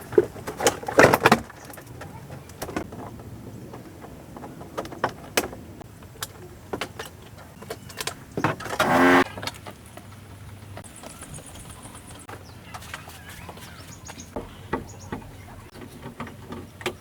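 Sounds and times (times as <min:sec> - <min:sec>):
loud buzzing burst: 0:08.8 - 0:09.2.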